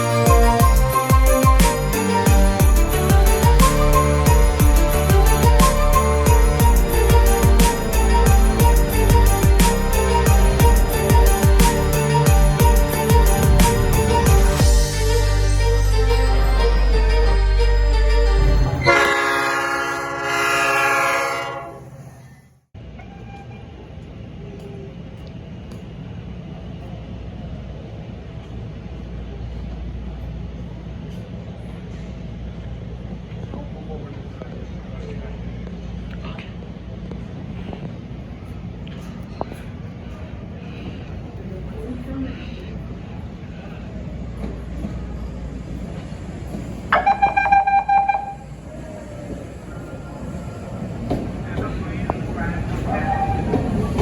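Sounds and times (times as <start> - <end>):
electric train rumbling on track: 0.0 - 54.0
train warning signal pulsing tone: 44.4 - 51.4.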